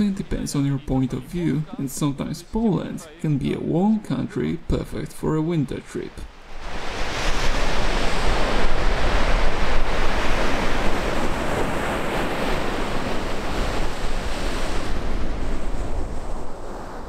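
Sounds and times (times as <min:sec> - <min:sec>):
surf washing onto shore: 0:06.1 - 0:17.0
wind buffeting microphone: 0:06.5 - 0:17.0.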